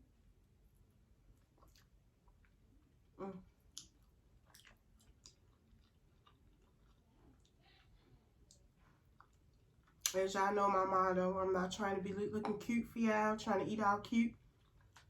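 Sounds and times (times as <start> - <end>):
chewing and mouth clicks: 1.3 - 10.2, 14.4 - 15.0.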